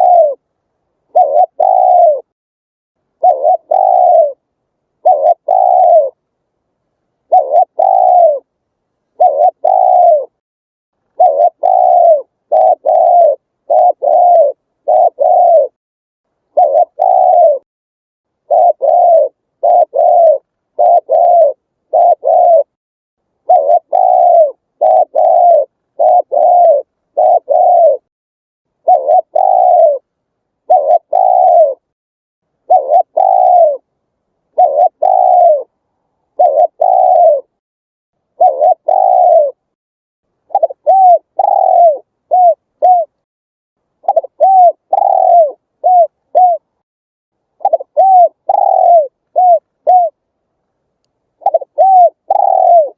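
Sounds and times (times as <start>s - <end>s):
dove cooing: 0.0s - 0.4s, 1.1s - 2.3s, 3.2s - 4.4s, 5.0s - 6.2s, 7.2s - 8.5s, 9.1s - 10.4s, 11.1s - 15.8s, 16.5s - 17.6s, 18.4s - 22.8s, 23.4s - 28.1s, 28.8s - 31.9s, 32.7s - 33.9s, 34.5s - 35.7s, 36.3s - 37.6s, 38.3s - 39.7s, 40.5s - 43.2s, 44.0s - 46.8s, 47.6s - 50.2s, 51.4s - 52.9s.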